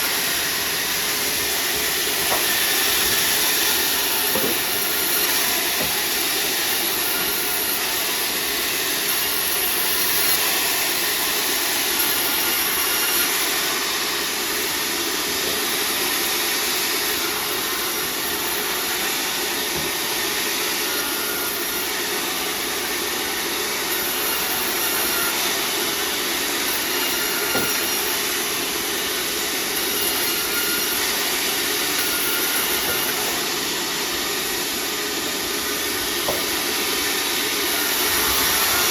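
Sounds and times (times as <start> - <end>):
saw cutting wood: 0.0 - 38.9.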